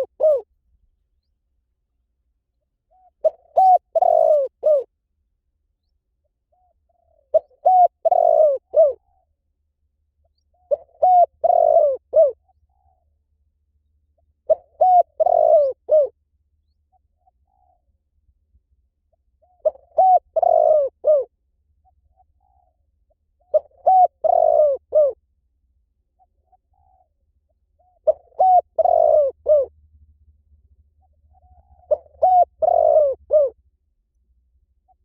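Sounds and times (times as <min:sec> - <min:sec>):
dove cooing: 0:00.0 - 0:00.5, 0:02.9 - 0:04.9, 0:06.5 - 0:09.3, 0:10.5 - 0:13.1, 0:14.4 - 0:16.2, 0:16.9 - 0:17.9, 0:19.2 - 0:22.8, 0:23.4 - 0:25.2, 0:26.2 - 0:27.2, 0:27.8 - 0:29.7, 0:31.0 - 0:33.6.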